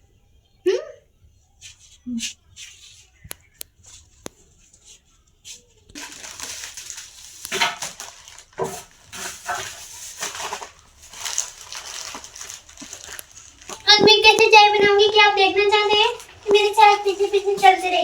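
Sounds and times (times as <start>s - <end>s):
crunching and crackling: 1.6s - 18.0s
faint clicks: 13.1s - 17.1s.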